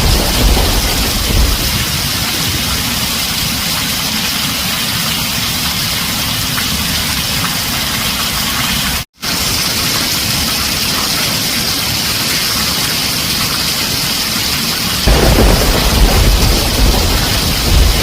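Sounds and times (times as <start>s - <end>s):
low thunder rumble: 0.0s - 3.6s, 15.1s - 18.0s
heavy rain on a tin roof: 0.0s - 18.0s.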